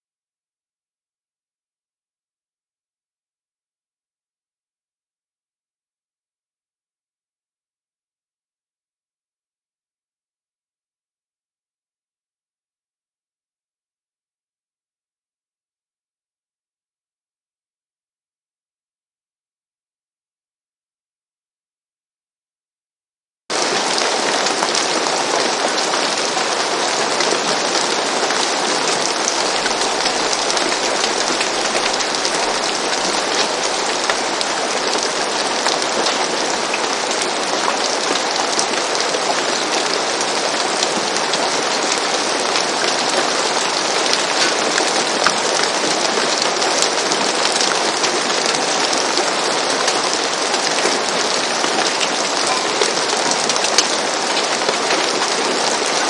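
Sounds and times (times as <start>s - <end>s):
rain falling on a roof: 23.5s - 56.0s.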